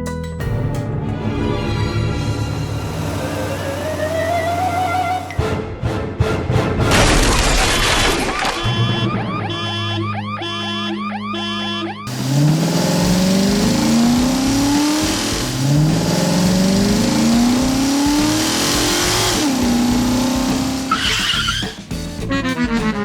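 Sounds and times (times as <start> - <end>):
music: 0.0 - 7.3, 8.6 - 12.1, 17.0 - 23.0
motor vehicle engine accelerating: 1.0 - 5.4, 12.1 - 22.0
short high screech: 20.9 - 21.8.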